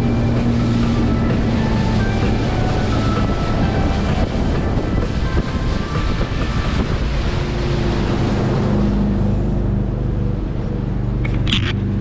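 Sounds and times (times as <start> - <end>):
boat motor running: 0.0 - 12.0
choppy water slapping: 0.0 - 12.0
wind buffeting microphone: 0.0 - 12.0.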